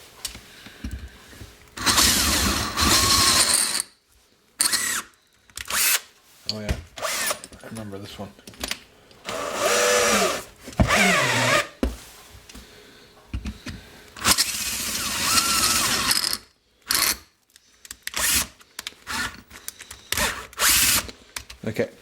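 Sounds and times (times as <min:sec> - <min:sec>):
electric drill running: 0:01.8 - 0:03.8, 0:04.6 - 0:06.0, 0:07.0 - 0:07.4, 0:09.2 - 0:11.8, 0:14.2 - 0:17.2, 0:18.1 - 0:19.5, 0:20.2 - 0:21.1.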